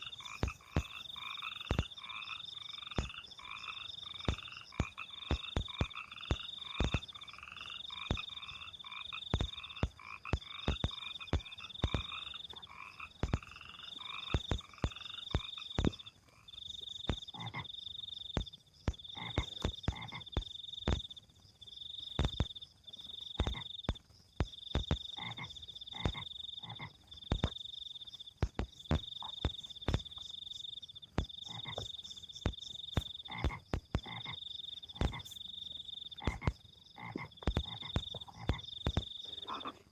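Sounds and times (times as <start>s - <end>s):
frogs high-pitched calling: 0.0s - 39.9s
sharp clicks: 4.2s - 7.2s, 9.3s - 16.1s, 22.2s - 22.6s, 28.4s - 30.3s, 31.1s - 34.4s, 36.2s - 39.4s
frog lower chattering call: 36.1s - 39.9s.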